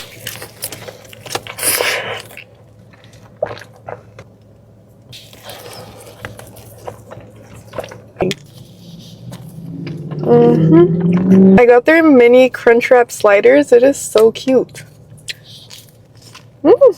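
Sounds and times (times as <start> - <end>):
wet chewing and mouth smacks: 0.0 - 10.3, 14.7 - 16.6.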